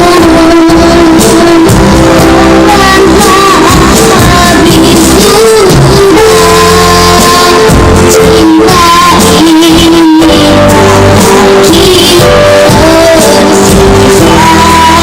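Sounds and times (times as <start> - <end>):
child singing: 0.0 - 15.0
loud backing music: 0.0 - 15.0.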